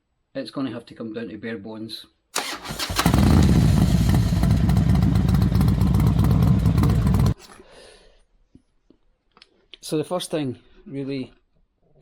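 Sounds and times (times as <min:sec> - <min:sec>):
small motorcycle engine running: 0:02.4 - 0:07.4.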